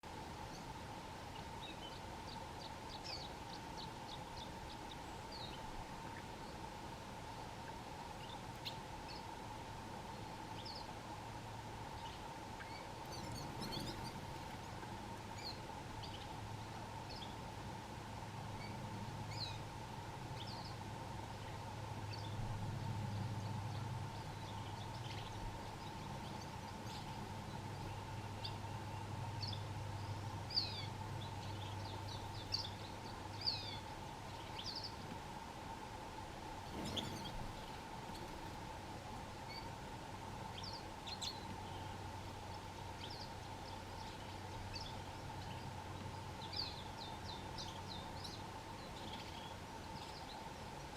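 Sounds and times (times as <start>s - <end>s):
faint hum and low rumble: 0.0s - 50.9s
canaries chirping: 12.0s - 14.6s, 24.4s - 27.2s, 36.7s - 38.6s, 49.0s - 50.4s.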